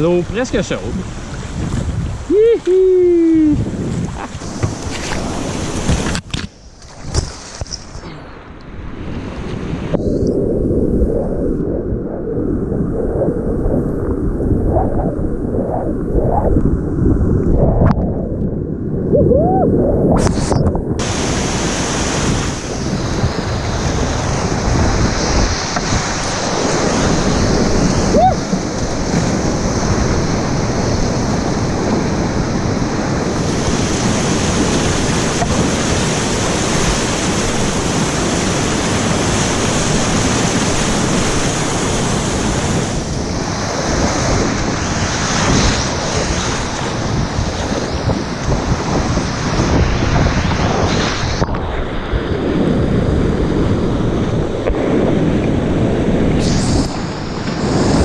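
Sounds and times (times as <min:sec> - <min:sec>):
wind buffeting microphone: 0:00.0 - 0:58.0
river rapids rushing: 0:21.0 - 0:23.0.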